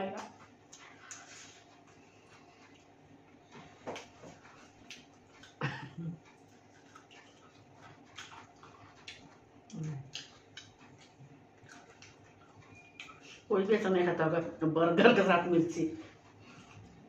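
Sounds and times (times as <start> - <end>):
wet chewing and biting: 0.2 - 13.5.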